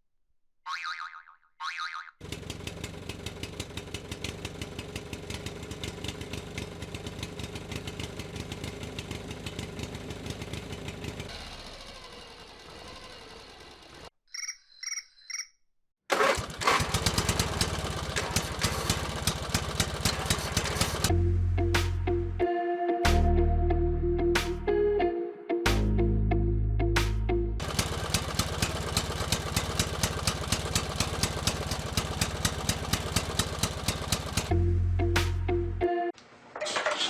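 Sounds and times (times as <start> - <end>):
small motor ticking: 2.2 - 14.1, 16.1 - 21.1, 27.6 - 34.6.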